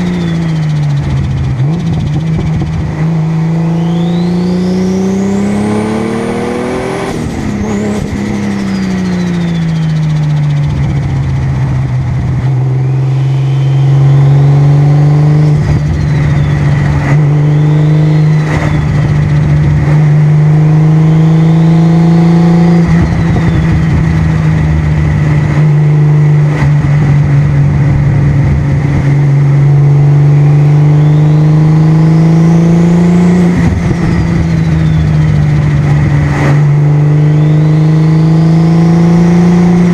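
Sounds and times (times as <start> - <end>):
sports car engine cruising: 0.0 - 39.9
faint high whistle: 0.1 - 0.9, 3.7 - 5.2, 8.6 - 10.4, 13.0 - 14.5, 15.8 - 16.8, 17.4 - 19.0, 31.0 - 31.6, 34.0 - 35.3, 37.3 - 38.0.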